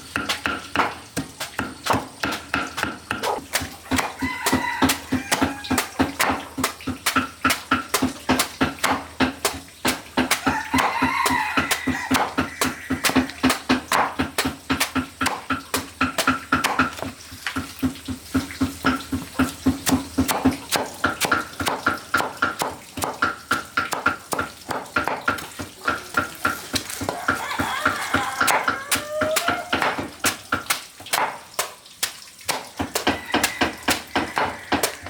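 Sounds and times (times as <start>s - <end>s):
knife chopping on cutting board: 0.1s - 35.0s.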